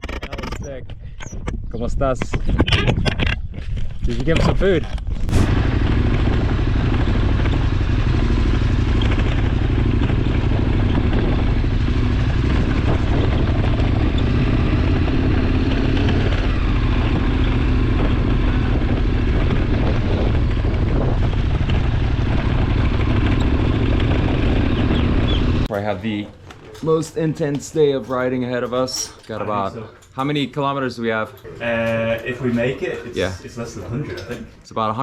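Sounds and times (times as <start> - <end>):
motorcycle engine running: 5.3 - 25.7.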